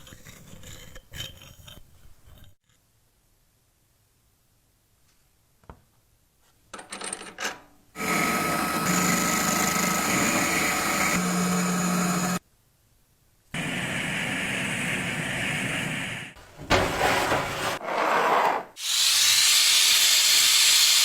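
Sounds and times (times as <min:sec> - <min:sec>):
electric power tool whining: 0:08.0 - 0:12.4
light handling scrapes: 0:16.6 - 0:18.6.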